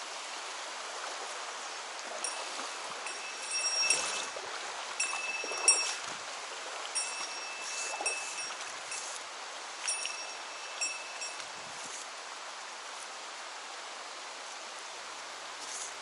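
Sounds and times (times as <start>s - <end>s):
mountain stream flowing: 0.0s - 16.0s
small metal bell jingling: 2.2s - 4.4s, 5.0s - 6.1s, 7.0s - 9.2s, 9.8s - 11.4s.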